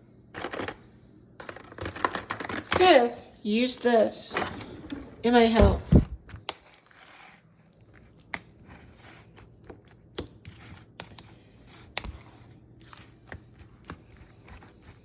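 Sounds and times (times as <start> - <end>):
kitchen utensils clicking: 4.1 - 5.9.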